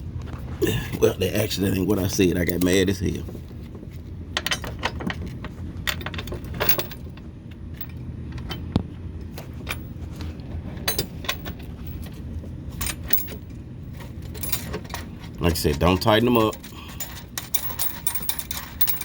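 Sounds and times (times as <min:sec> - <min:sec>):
steady low hum: 0:00.0 - 0:19.0
metal hardware clinking: 0:04.4 - 0:07.1, 0:10.8 - 0:12.2, 0:12.8 - 0:19.0.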